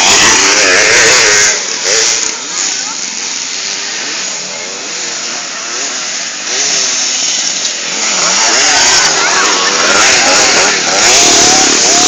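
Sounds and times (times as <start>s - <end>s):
motorbike engines revving: 0.0s - 12.0s.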